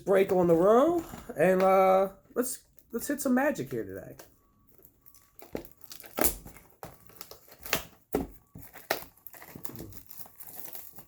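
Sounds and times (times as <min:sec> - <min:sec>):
plastic wrapping crinkling: 0:02.8 - 0:11.0.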